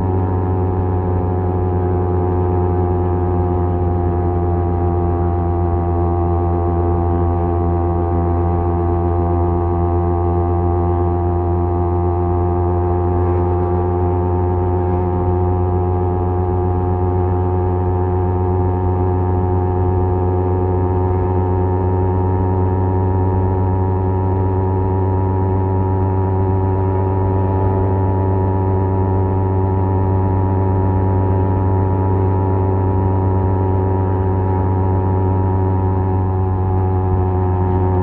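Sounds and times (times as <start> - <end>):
motorcycle engine exhaust drone: 0.0 - 38.0.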